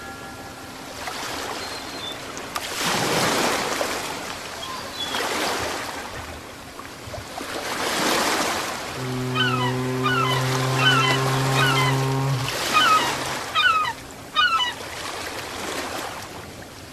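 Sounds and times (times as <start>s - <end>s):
ocean waves washing in: 0.0s - 16.5s.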